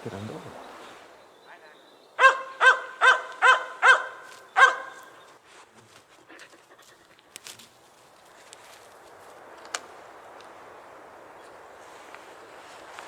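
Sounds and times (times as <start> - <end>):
dog barking: 2.2 - 5.1.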